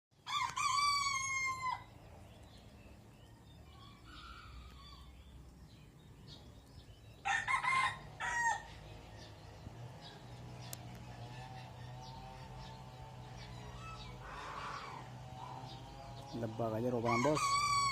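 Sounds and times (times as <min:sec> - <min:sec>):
rooster crowing: 0:00.2 - 0:01.9, 0:03.6 - 0:05.1, 0:07.2 - 0:08.8, 0:13.4 - 0:15.1, 0:17.0 - 0:17.9.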